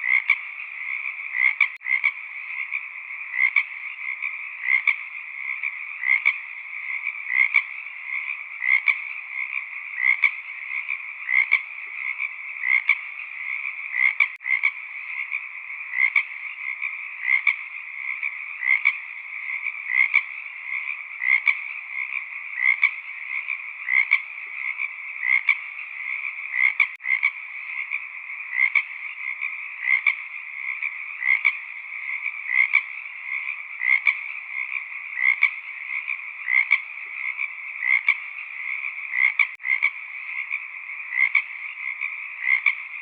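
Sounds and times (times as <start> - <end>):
frogs croaking: 0.0 - 43.0.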